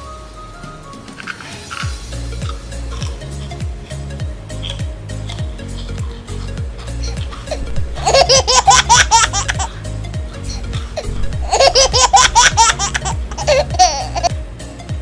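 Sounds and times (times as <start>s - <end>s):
background music with low beat: 0.0s - 15.0s
high-pitched laughter: 7.0s - 9.8s, 10.6s - 14.3s.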